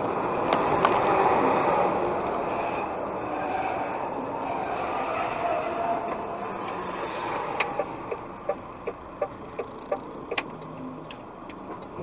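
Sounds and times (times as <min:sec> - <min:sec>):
car running noise: 0:04.5 - 0:12.0.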